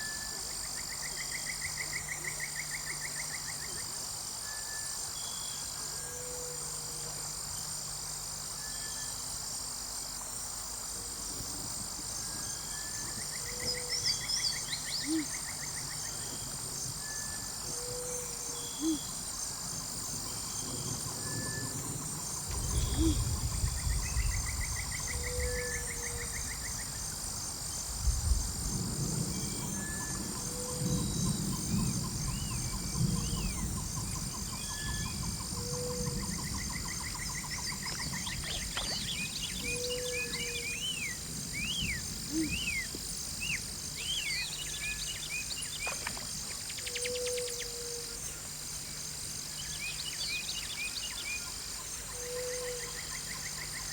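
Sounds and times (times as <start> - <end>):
insect chorus: 0.0 - 53.9
wind gusts rumbling: 21.1 - 36.9.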